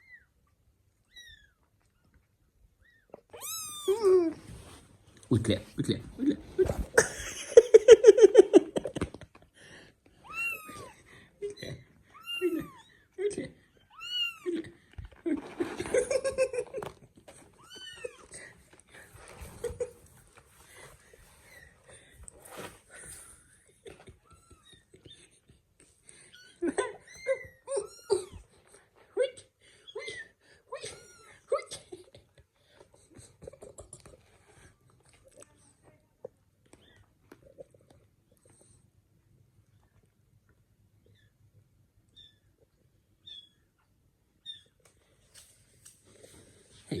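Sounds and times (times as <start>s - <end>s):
small squeaks: 1.1s - 2.2s, 42.1s - 44.9s
kittens mewing: 10.2s - 14.7s.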